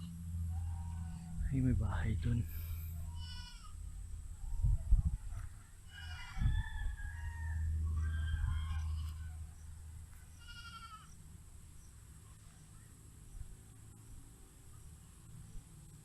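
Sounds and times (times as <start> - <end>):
farm animals calling: 0.0 - 1.4, 2.4 - 4.9, 7.5 - 11.2
low rumble: 0.0 - 10.2.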